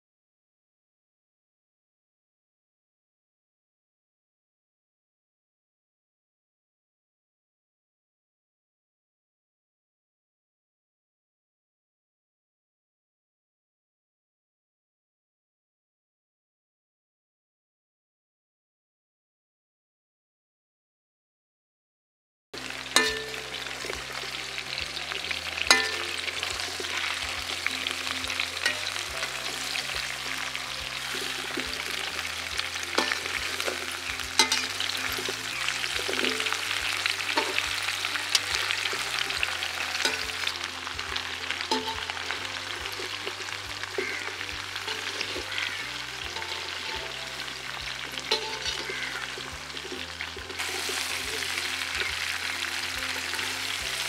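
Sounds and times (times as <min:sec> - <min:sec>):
vegetables sizzling in a pan: 0:22.6 - 0:54.0
spoon scraping and clinking on pan: 0:22.9 - 0:40.6, 0:41.6 - 0:44.3, 0:44.9 - 0:53.8.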